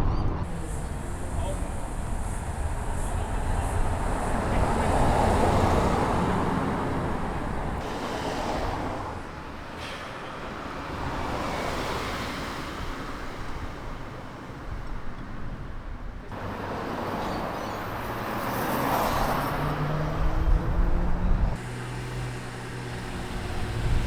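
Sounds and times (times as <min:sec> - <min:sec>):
car driving past: 0:00.4 - 0:10.2, 0:16.3 - 0:24.0.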